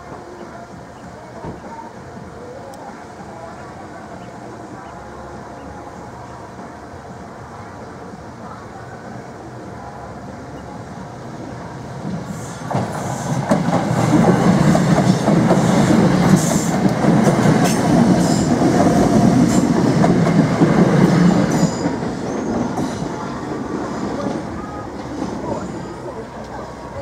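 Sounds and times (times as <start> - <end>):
train wheels rumbling and clicking: 12.0 - 27.0.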